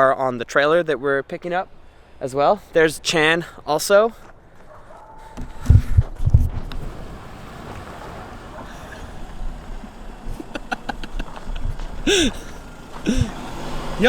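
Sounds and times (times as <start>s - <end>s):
car engine rumble: 1.6s - 14.0s.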